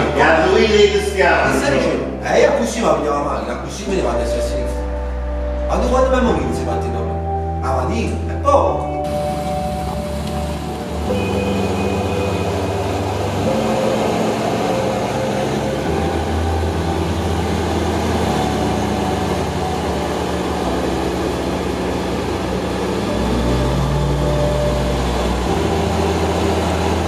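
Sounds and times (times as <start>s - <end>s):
car engine running: 9.0s - 27.0s.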